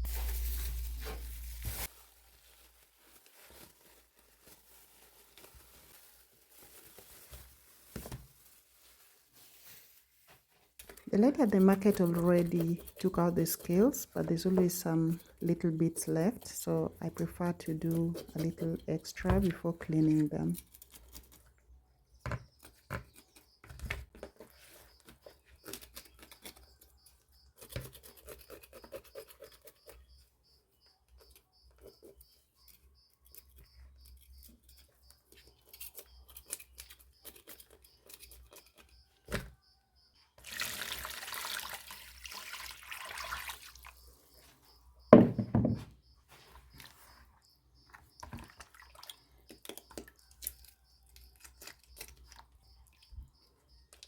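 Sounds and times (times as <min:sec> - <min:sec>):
knife scraping fish scales: 0:27.4 - 0:30.0
water pouring: 0:40.4 - 0:44.0.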